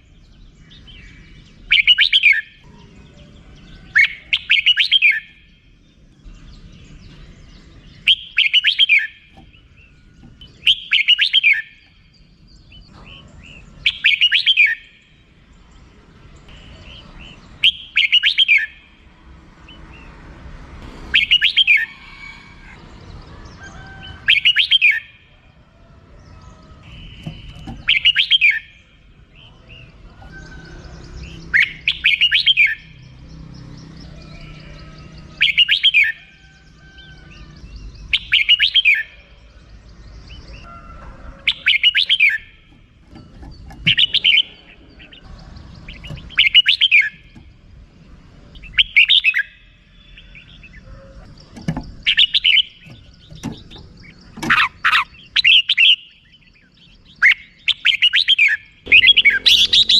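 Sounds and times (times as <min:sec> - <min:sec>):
bird chattering call: 0:08.0 - 0:12.0, 0:26.4 - 0:29.9, 0:41.5 - 0:47.5, 0:48.6 - 0:59.9.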